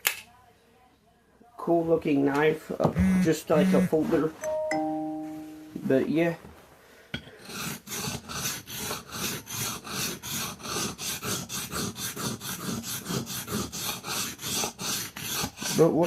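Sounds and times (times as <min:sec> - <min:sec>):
knife scraping on whetstone: 0:07.4 - 0:16.0.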